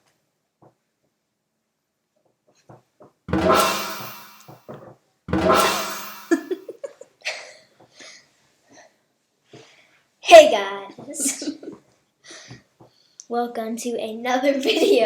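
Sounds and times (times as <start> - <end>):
drum hits with cymbal crash: 3.3 - 6.6.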